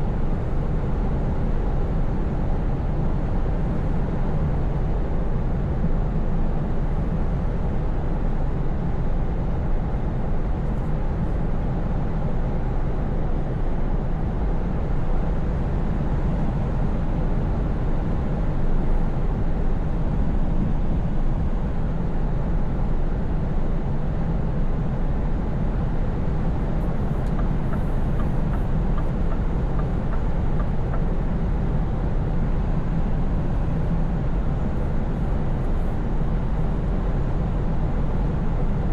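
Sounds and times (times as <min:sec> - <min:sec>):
road and tyre noise: 0:00.0 - 0:38.9
truck engine droning: 0:26.5 - 0:31.9.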